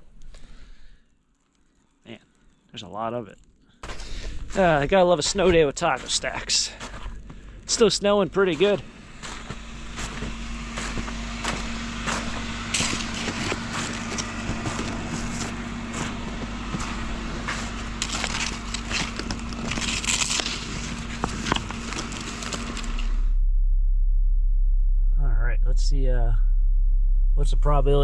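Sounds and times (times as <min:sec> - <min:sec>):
crunching in deep snow: 0:03.8 - 0:23.3
engine idling: 0:03.8 - 0:28.0.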